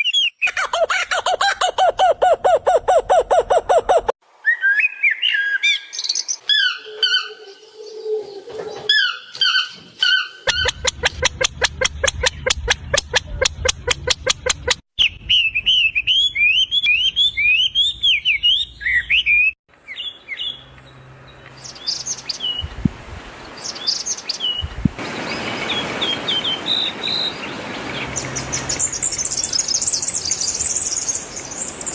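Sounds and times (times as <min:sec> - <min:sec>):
songbirds singing: 0:15.0 - 0:31.9
low thumps: 0:22.6 - 0:23.2, 0:24.6 - 0:25.0.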